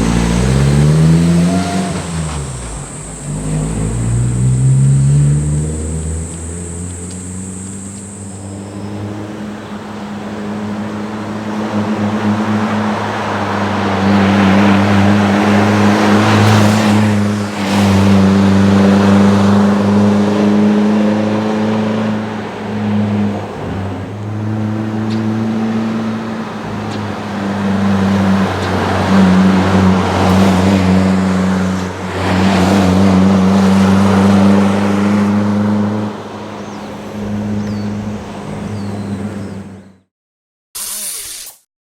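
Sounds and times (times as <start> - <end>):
car engine exhaust note: 0.0 - 9.0.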